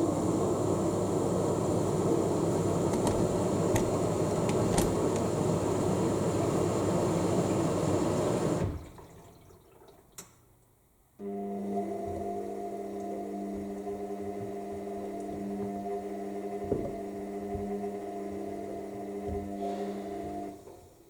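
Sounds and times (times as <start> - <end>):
washing machine filling with water: 0.0 - 10.2, 11.2 - 21.0.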